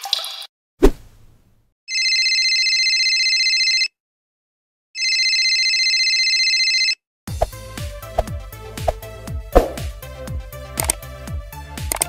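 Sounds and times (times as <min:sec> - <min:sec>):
telephone ringing: 0:01.9 - 0:04.0, 0:05.0 - 0:07.0.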